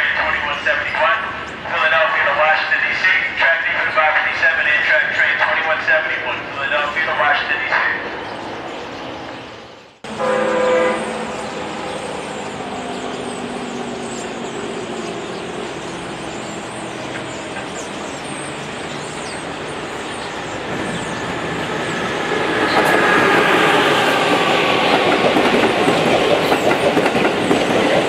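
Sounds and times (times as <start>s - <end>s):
approaching train rumble: 0.0s - 28.0s
train horn blast: 10.1s - 11.5s.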